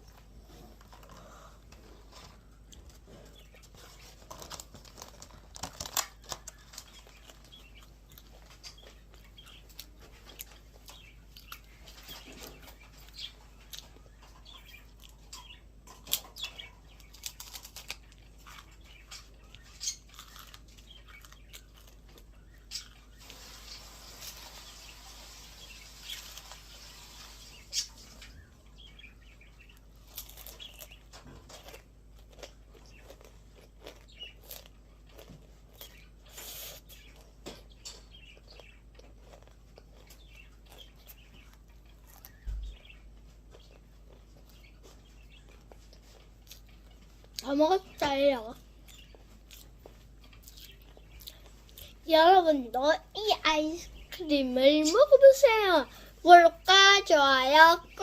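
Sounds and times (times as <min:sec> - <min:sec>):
crunching and chewing: 0:00.0 - 0:52.1
soft hissing noise: 0:23.1 - 0:28.3.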